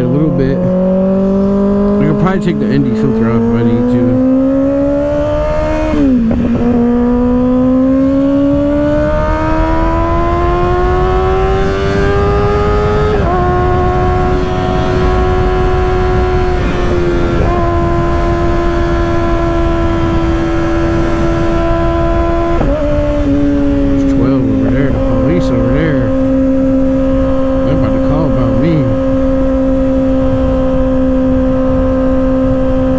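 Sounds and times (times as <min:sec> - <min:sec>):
motorcycle engine revving with upshifts: 0:00.0 - 0:32.9
wind noise: 0:00.0 - 0:32.9.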